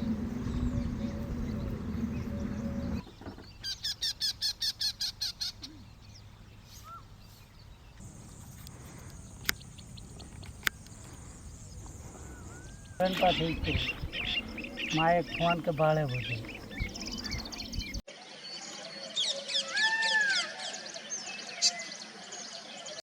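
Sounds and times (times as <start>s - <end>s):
low hum: 0.0s - 3.1s, 8.0s - 18.0s
high hiss of insects: 6.6s - 17.8s
sharp clicks: 8.0s - 17.8s.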